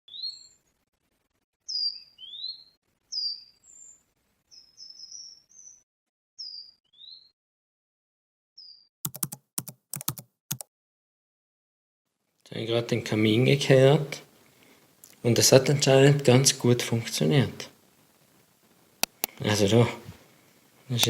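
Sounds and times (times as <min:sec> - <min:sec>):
songbird chirping and whistling: 0:00.1 - 0:00.6, 0:01.7 - 0:05.8, 0:06.4 - 0:07.4, 0:08.6 - 0:08.9
sharp clicks: 0:09.1 - 0:10.7, 0:19.0 - 0:19.4.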